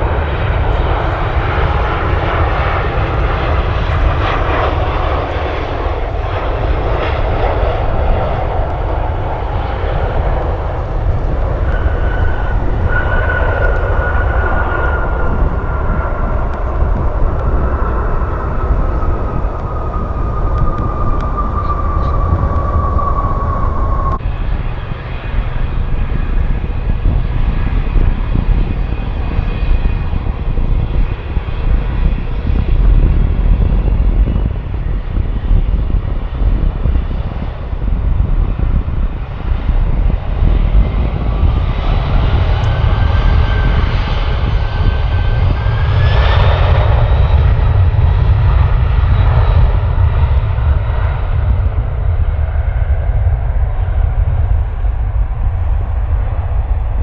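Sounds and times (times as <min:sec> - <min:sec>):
rising engine whine: 0:00.0 - 0:33.2
jet engines rumbling: 0:00.0 - 0:57.0.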